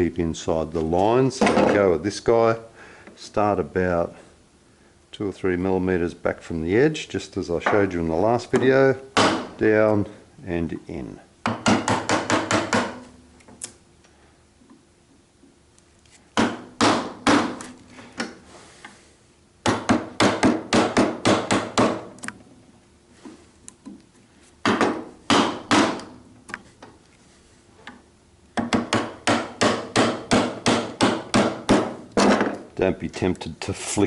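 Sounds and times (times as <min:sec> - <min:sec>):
mallet striking chisel: 0:28.6 - 0:32.6.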